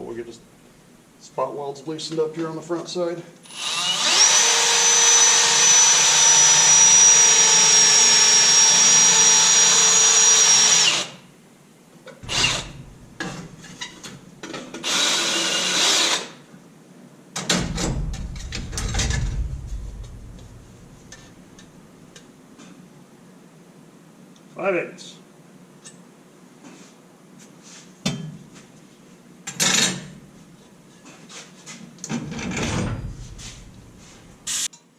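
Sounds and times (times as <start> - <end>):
power drill whining: 3.4 - 11.2, 12.2 - 12.9, 14.8 - 16.4
metal knocks and rattles: 12.2 - 14.1, 17.4 - 21.8, 32.2 - 34.4.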